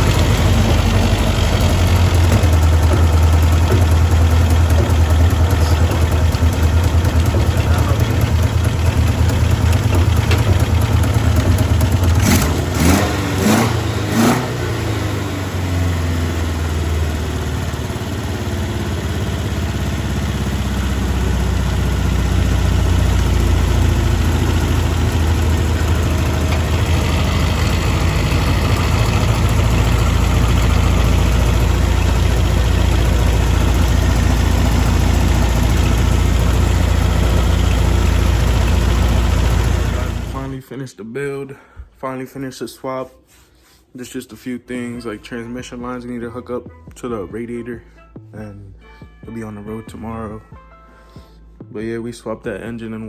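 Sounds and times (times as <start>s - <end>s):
car engine revving and idling: 0.0s - 40.6s.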